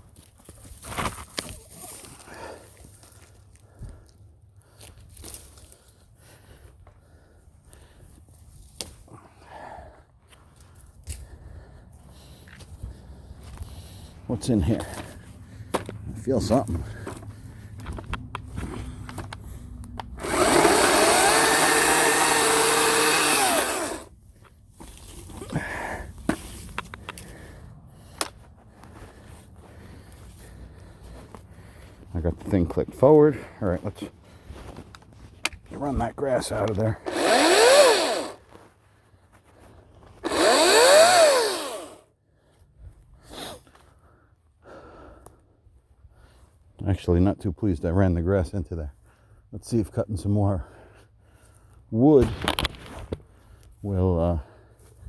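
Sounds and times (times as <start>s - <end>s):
handling clicks and rustling: 14.7s - 21.1s
electric chainsaw motor whining: 20.0s - 24.1s, 36.5s - 38.4s, 40.2s - 42.0s.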